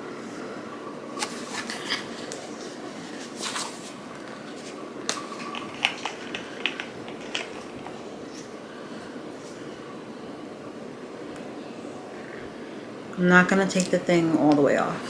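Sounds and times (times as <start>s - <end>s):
low room hum: 0.0s - 15.0s
packaging rustling: 1.2s - 8.6s
packaging clicks: 4.6s - 8.5s.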